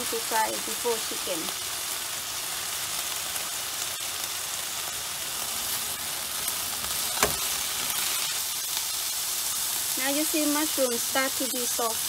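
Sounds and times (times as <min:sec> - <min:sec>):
food sizzling in a frying pan: 0:00.0 - 0:12.0
sharp knock: 0:07.2 - 0:07.4.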